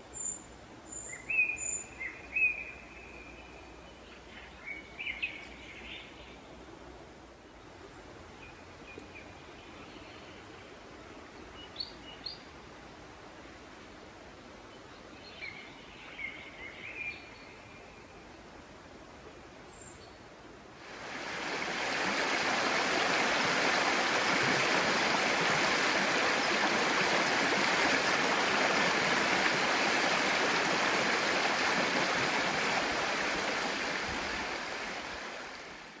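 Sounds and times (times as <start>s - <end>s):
stream water rushing: 20.8s - 36.0s.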